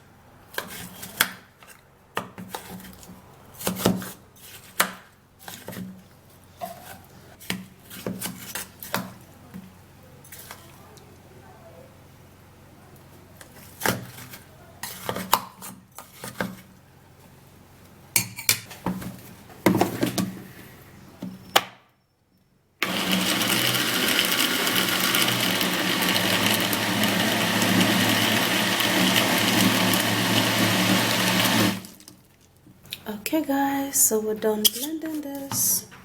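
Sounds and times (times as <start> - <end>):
electric blender running: 22.8 - 32.0.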